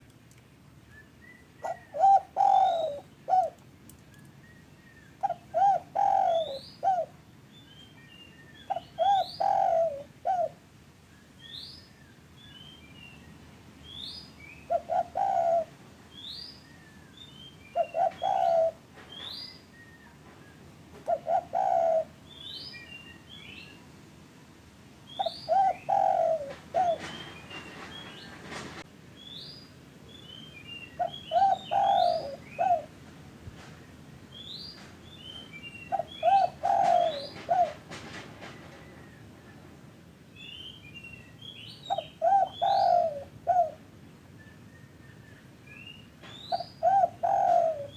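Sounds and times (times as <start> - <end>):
small birds chirping: 0.8 - 10.5, 11.1 - 23.9, 25.0 - 28.4, 29.2 - 32.9, 33.8 - 37.8, 40.3 - 43.8, 44.5 - 47.9
dove cooing: 1.6 - 3.6, 5.2 - 7.2, 8.7 - 10.6, 14.7 - 15.8, 17.7 - 18.9, 21.0 - 22.2, 25.2 - 27.8, 31.0 - 33.0, 35.9 - 37.9, 41.9 - 43.8, 46.5 - 47.9
brief rustle: 26.5 - 28.9.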